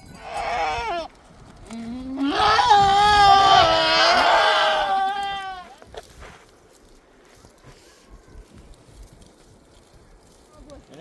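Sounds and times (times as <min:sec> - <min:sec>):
sheep bleating: 0:00.0 - 0:06.0.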